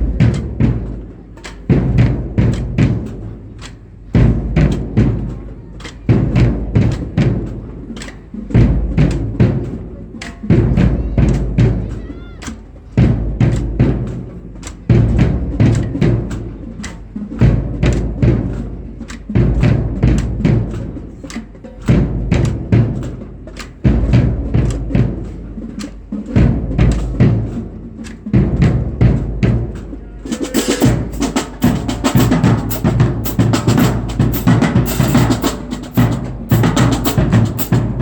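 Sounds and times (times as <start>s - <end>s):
booming bass drums: 0.0s - 1.0s, 30.6s - 38.0s
snare drum strikes: 25.8s - 38.0s.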